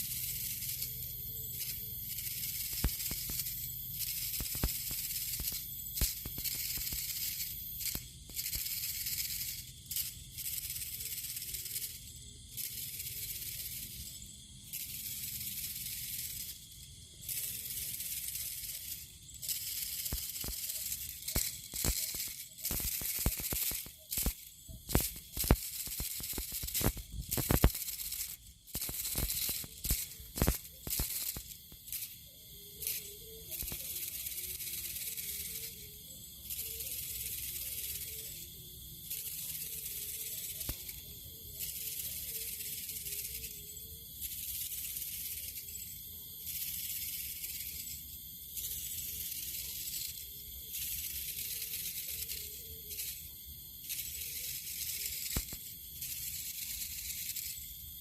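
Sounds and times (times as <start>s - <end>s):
bamboo strips rattling: 0.0s - 38.5s
faint wavering kite hum: 0.0s - 58.0s
sharp clicks: 0.2s - 11.5s, 17.2s - 35.8s, 39.1s - 41.0s, 53.9s - 57.6s.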